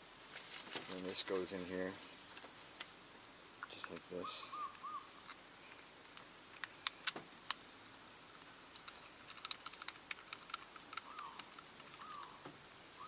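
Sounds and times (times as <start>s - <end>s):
plastic harness clips clicking: 8.7s - 12.0s.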